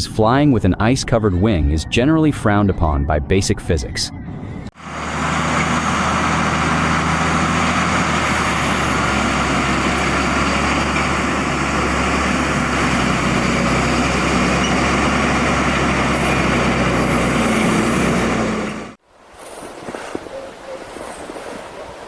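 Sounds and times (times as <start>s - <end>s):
truck engine running: 4.8s - 22.0s.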